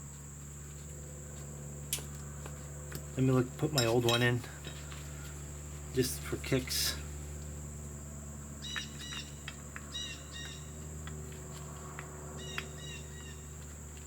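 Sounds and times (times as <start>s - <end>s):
steady hum: 0.0s - 14.0s
light metallic clinks: 2.9s - 4.4s.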